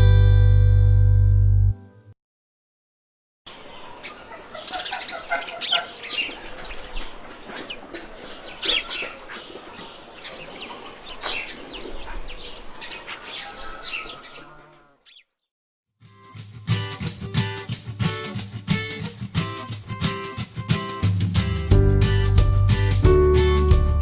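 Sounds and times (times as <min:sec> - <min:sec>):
birds chirping and calling: 0:03.5 - 0:15.5.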